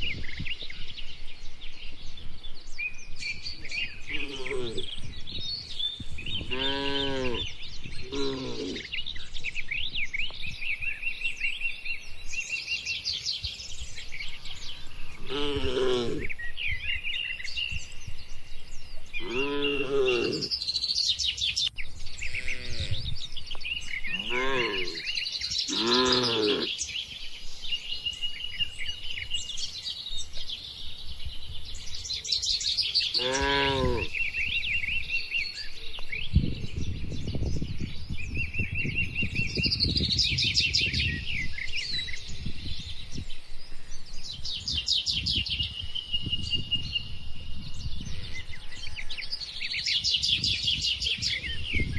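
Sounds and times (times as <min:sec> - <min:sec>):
small birds chirping: 0:00.0 - 0:51.9
cattle mooing: 0:04.1 - 0:04.9, 0:06.5 - 0:07.5, 0:08.1 - 0:08.9, 0:15.2 - 0:16.3, 0:19.2 - 0:20.5, 0:22.3 - 0:23.0, 0:24.1 - 0:25.1, 0:25.7 - 0:26.7, 0:33.2 - 0:34.1.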